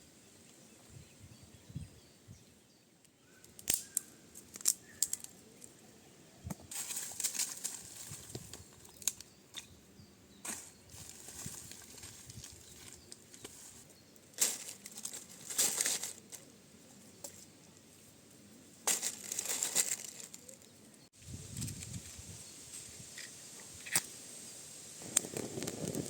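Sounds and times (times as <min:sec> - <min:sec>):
rustling and crinkling: 0:06.5 - 0:09.7, 0:10.4 - 0:24.2.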